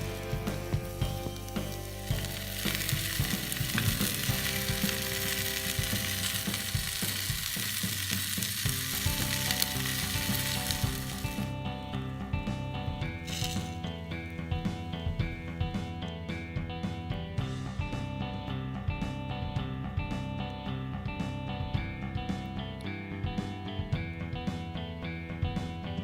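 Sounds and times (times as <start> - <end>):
food sizzling in a skillet: 0.0 - 11.5, 13.3 - 13.8.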